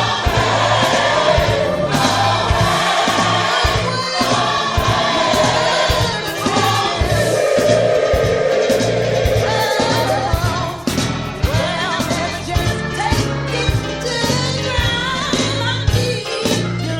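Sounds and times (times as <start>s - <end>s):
gospel choir singing: 0.0s - 12.7s
band playing: 0.0s - 14.0s
steady drum beat: 0.0s - 14.0s.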